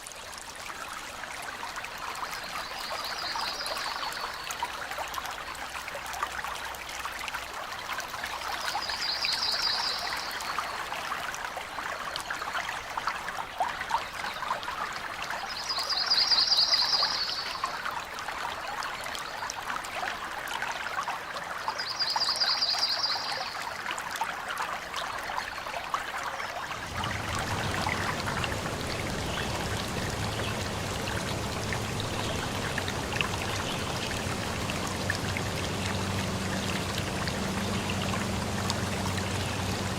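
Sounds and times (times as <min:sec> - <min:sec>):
water trickling and splashing: 0:00.0 - 0:39.9
low steady hum: 0:26.7 - 0:39.9.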